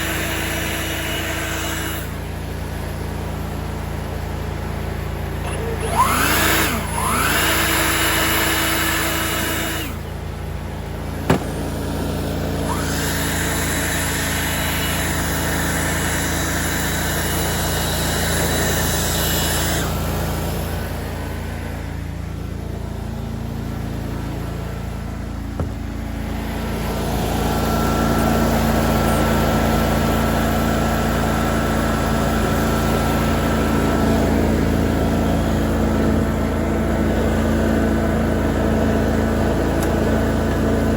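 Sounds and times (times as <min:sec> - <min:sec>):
lawn mower engine running: 0:00.0 - 0:40.9
sharp knocks: 0:11.3 - 0:11.8, 0:25.6 - 0:26.1.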